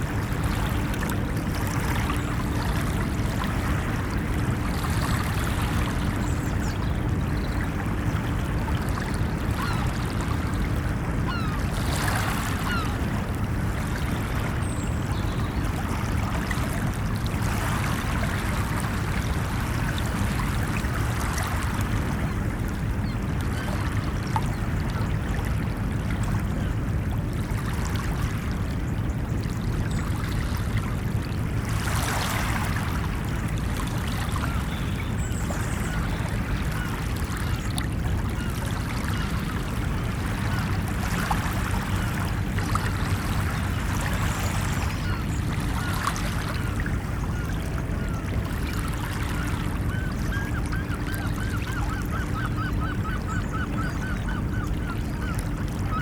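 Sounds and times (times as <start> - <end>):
ocean waves washing onto beach: 0.0 - 28.8.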